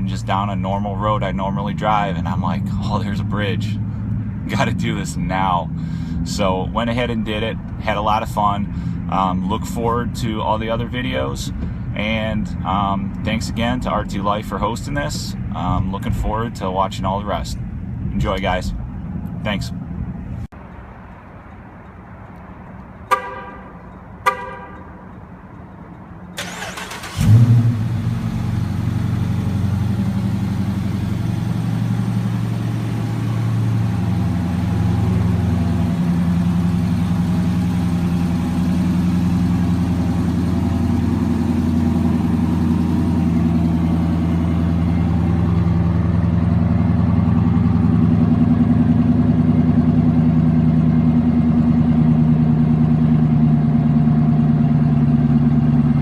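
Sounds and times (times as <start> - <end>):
car engine revving and idling: 0.0 - 56.0
car horn chirps: 23.0 - 25.1
engine starter cranking: 26.3 - 28.0.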